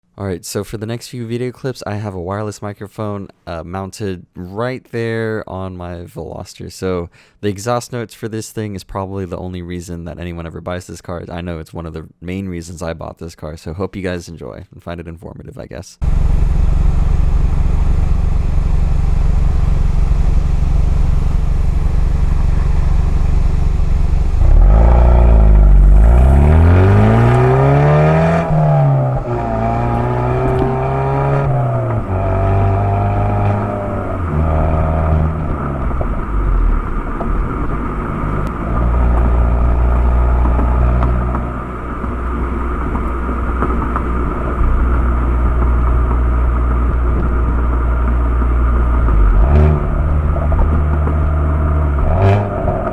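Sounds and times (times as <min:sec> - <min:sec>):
car engine idling and revving: 0:16.0 - 0:52.9.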